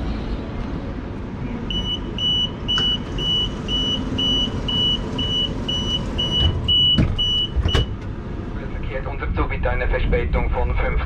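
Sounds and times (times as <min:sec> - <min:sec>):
low rumble of standing train: 0:00.0 - 0:11.0
train door warning beeps: 0:01.7 - 0:08.0.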